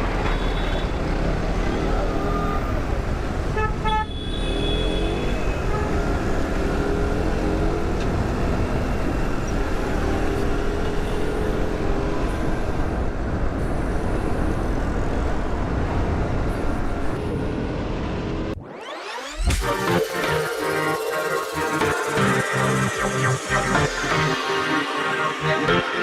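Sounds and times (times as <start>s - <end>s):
road and wind noise: 0.0s - 18.6s
traffic: 0.0s - 26.0s.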